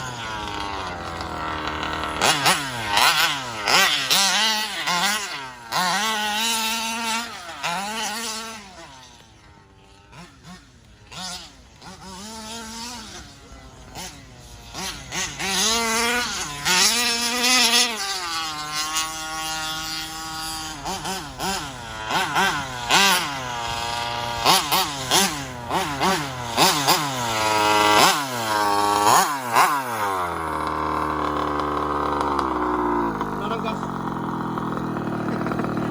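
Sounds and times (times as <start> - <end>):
two-stroke engine revving: 0.0 - 35.9.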